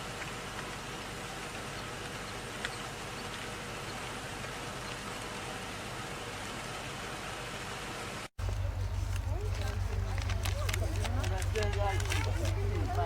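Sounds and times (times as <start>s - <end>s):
low hum: 8.4s - 13.0s.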